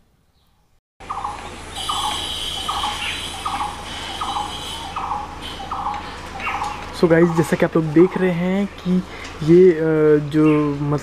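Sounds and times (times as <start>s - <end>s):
bird rasping call: 1.0s - 8.3s.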